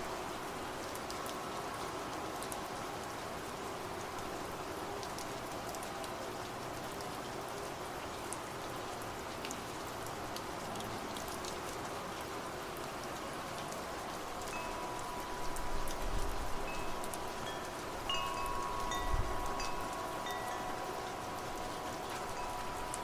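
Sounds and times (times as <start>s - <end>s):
steady rain: 0.0s - 23.0s
wind chime ringing: 14.5s - 23.0s.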